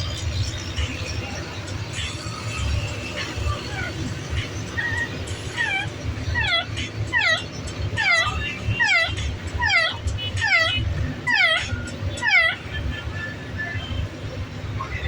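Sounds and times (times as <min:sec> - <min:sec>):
pet squealing calls: 0:02.4 - 0:12.9.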